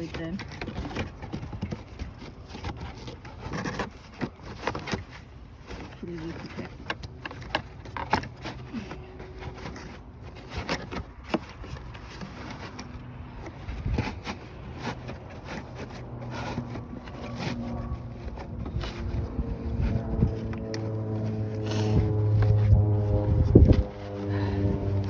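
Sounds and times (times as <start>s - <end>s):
hand tools clicking and scraping: 0.0s - 25.0s
steady low hum: 12.8s - 25.0s.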